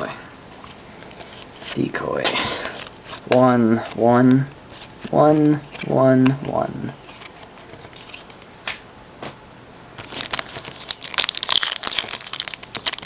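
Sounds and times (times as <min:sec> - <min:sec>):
wrapper crinkling: 0:10.0 - 0:13.0.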